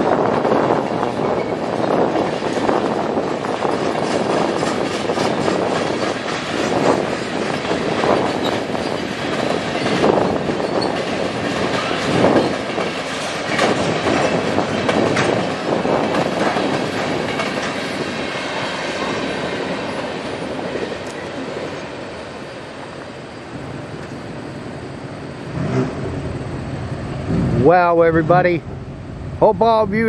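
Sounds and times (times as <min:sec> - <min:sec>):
wheels clacking on rail joints: 0:00.0 - 0:23.1
steel wheels rumbling on rail: 0:00.0 - 0:30.0.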